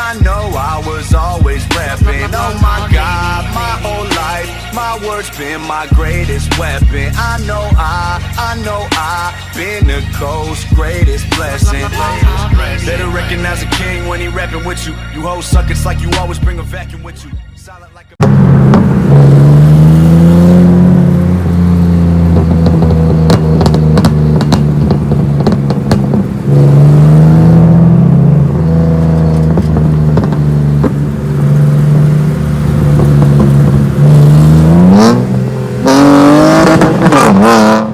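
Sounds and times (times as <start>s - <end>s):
car engine running and revving: 0.0s - 16.9s, 18.2s - 37.9s
exhaust pops and crackles: 0.1s - 4.5s, 18.2s - 37.9s.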